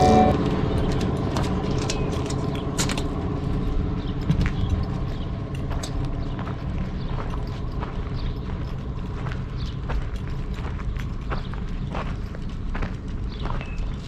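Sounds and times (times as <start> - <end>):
guitar tune: 0.0 - 0.4
engine running with pulsing rumble: 0.0 - 14.0.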